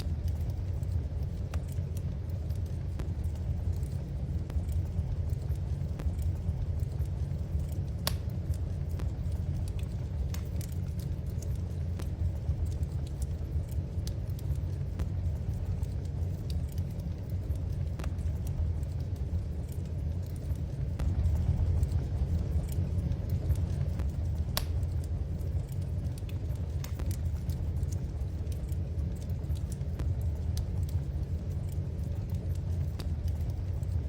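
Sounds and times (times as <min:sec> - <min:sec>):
low fire rumble: 0:00.0 - 0:34.0
wood fire crackling: 0:00.0 - 0:34.0.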